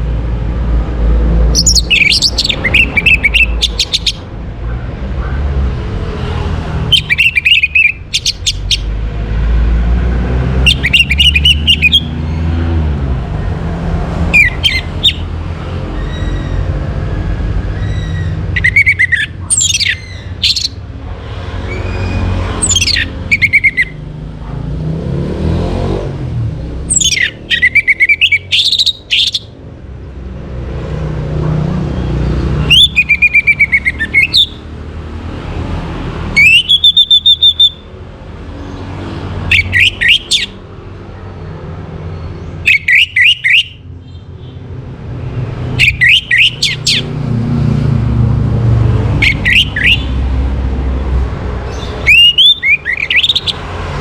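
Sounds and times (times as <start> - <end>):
thrush singing whistled notes: 1.5 - 4.5, 6.2 - 9.0, 10.5 - 12.7, 14.3 - 15.3, 17.8 - 24.0, 26.9 - 29.6, 32.3 - 34.7, 36.3 - 38.0, 39.5 - 40.6, 42.1 - 44.2, 45.7 - 47.2, 49.2 - 50.4, 51.7 - 54.0.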